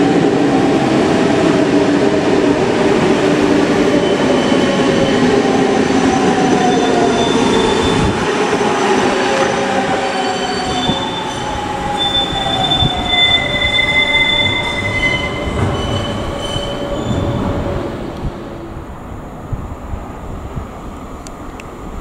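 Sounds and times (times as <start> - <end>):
train rolling noise: 0.0 - 22.0
high squealing tones: 10.1 - 17.7.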